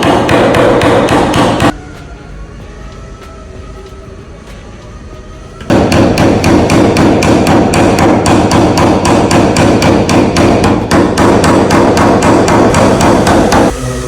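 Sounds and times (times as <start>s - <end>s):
hammer tapping on sheet metal: 0.0s - 1.8s, 5.7s - 13.7s.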